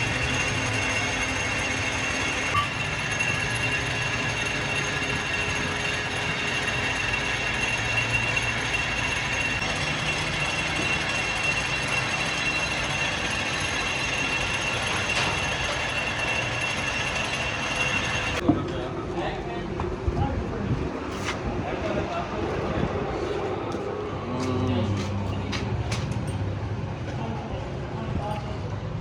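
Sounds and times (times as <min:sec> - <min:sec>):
thin high whine: 0:00.0 - 0:18.4
workshop machine rattling: 0:00.0 - 0:18.4.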